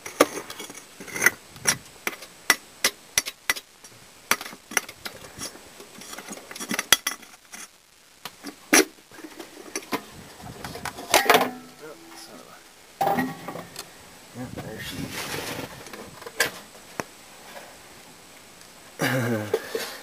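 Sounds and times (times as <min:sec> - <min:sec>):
tools clanking on metal: 0:10.8 - 0:12.2, 0:13.0 - 0:13.7.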